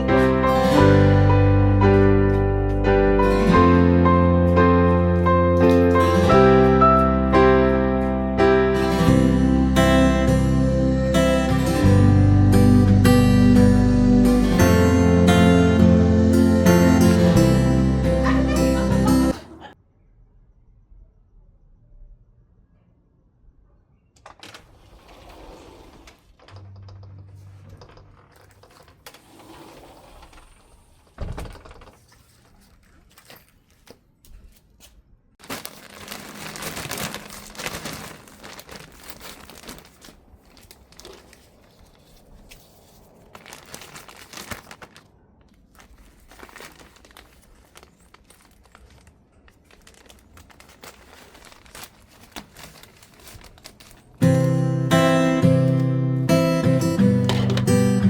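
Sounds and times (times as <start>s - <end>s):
crinkling and rustling: 24.2s - 54.6s, 57.2s - 58.0s.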